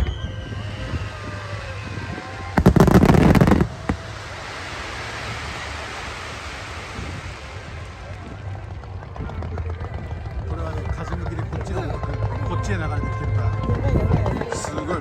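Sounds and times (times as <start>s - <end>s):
firework whistles: 0.0s - 7.2s
firework bangs and crackles: 0.0s - 10.5s
fizzing crackle: 2.6s - 8.2s.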